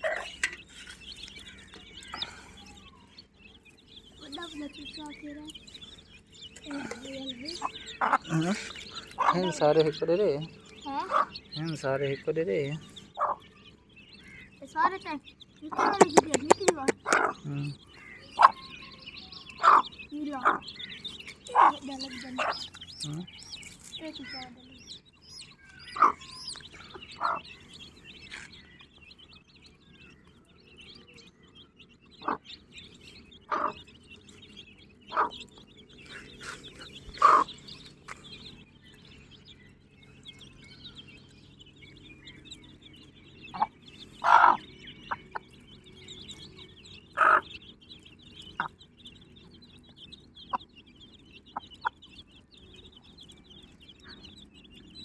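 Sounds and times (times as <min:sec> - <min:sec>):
hen clucking: 0:00.0 - 0:29.3, 0:32.0 - 0:39.3, 0:40.0 - 0:54.9
chicks cheeping: 0:00.0 - 0:55.0.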